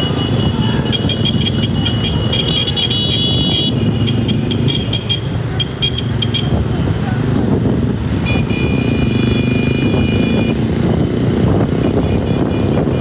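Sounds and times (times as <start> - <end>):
high horn tone: 0.0 - 6.6, 8.2 - 10.7
motorcycles running: 0.0 - 13.0.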